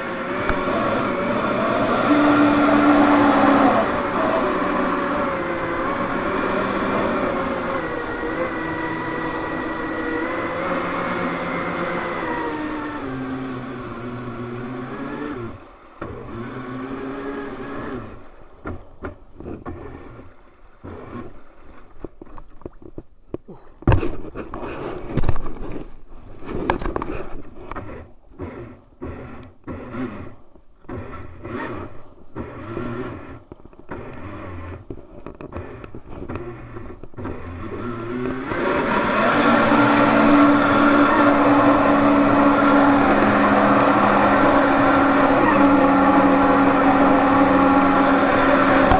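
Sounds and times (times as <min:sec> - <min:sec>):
electric motor whining: 0:00.0 - 0:18.2, 0:27.8 - 0:48.9
knocks and scraping: 0:18.6 - 0:48.9.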